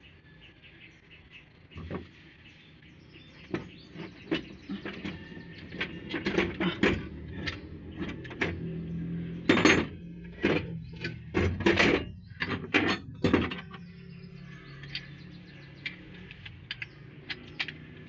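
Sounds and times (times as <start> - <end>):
metal tools clanking: 3.4 - 18.0.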